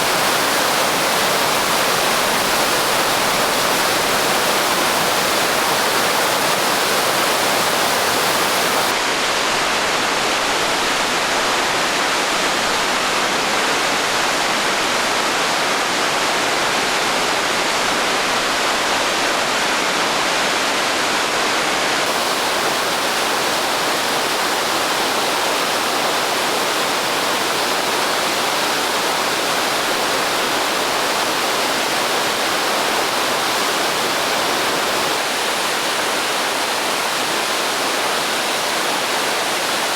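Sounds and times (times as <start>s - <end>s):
waterfall rushing: 0.0s - 9.3s, 22.0s - 39.9s.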